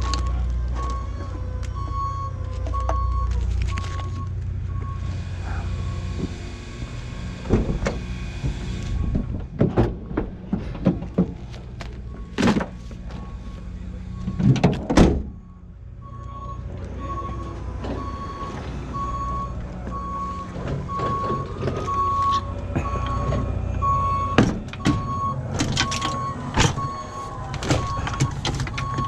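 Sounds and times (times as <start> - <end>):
reversing alarm beeping: 0.0 - 7.3, 8.8 - 9.4, 12.0 - 29.0
low engine rumble: 0.0 - 29.0
loud knocks and clatters: 7.5 - 11.5.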